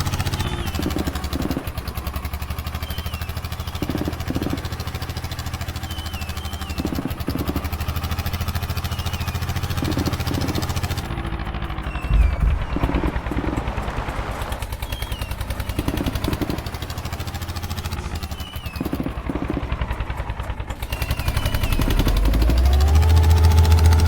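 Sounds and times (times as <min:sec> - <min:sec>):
diesel tractor engine running: 0:00.0 - 0:24.0
rising pitched tone: 0:11.9 - 0:15.3.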